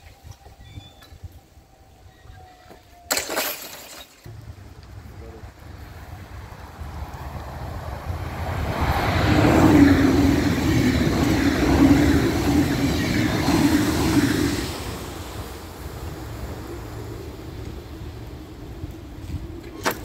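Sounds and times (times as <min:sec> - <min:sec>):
passenger train passing: 0:04.3 - 0:20.0.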